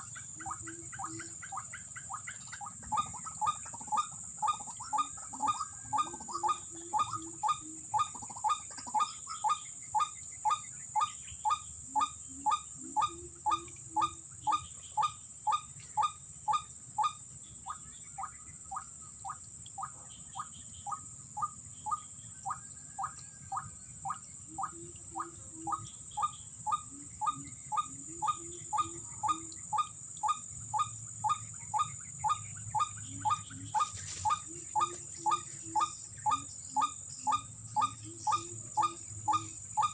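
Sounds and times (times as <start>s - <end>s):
waterhen calling: 0.0s - 39.9s
high insect buzz: 33.2s - 39.9s.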